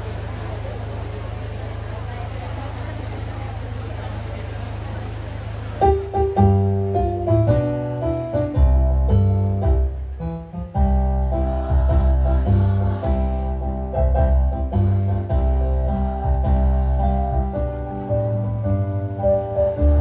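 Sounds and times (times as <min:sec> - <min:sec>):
electronic keyboard playing chords: 0:05.8 - 0:20.0
steady bass: 0:05.8 - 0:20.0.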